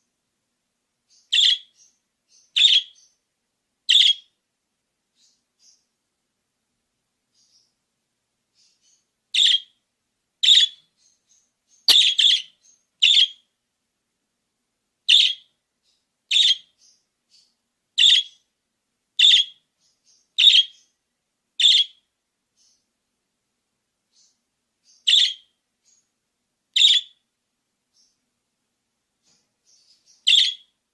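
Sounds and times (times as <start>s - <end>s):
budgerigar chirping: 1.3s - 3.1s, 3.9s - 4.3s, 9.4s - 9.7s, 10.4s - 10.8s, 11.9s - 13.4s, 15.1s - 15.5s, 16.3s - 16.7s, 18.0s - 18.4s, 19.2s - 19.6s, 20.4s - 20.8s, 21.6s - 22.0s, 25.1s - 25.5s, 26.8s - 27.2s, 30.3s - 30.7s.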